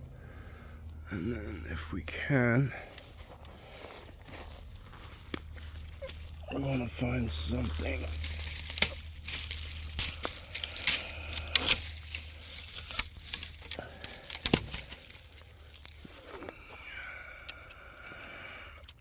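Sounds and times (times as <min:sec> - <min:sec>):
dry leaves and twigs crackling: 0:00.0 - 0:19.0.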